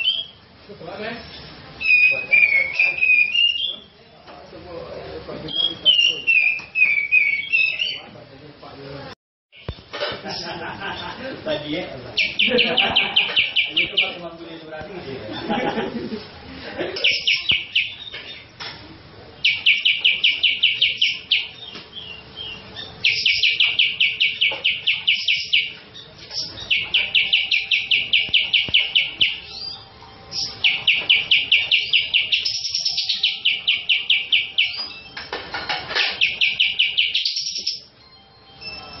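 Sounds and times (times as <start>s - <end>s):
bird singing loudly: 0.0s - 0.4s, 1.8s - 4.0s, 5.5s - 8.1s, 12.2s - 14.2s, 17.0s - 18.1s, 19.4s - 25.8s, 26.4s - 35.1s, 36.2s - 37.9s.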